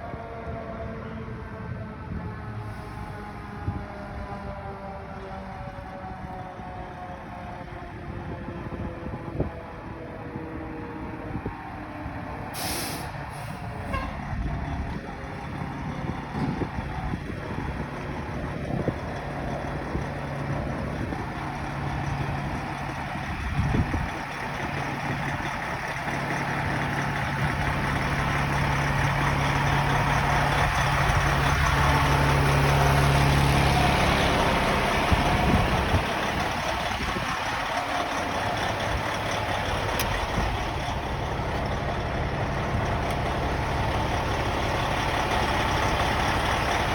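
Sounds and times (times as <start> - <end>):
large truck engine running: 8.7 - 46.9.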